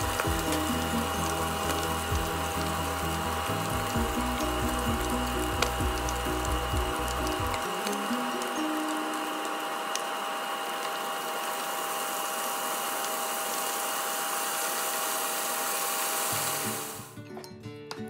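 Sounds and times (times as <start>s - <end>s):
music: 0.0s - 10.2s, 16.3s - 18.0s
food deep-frying in oil: 0.0s - 17.2s.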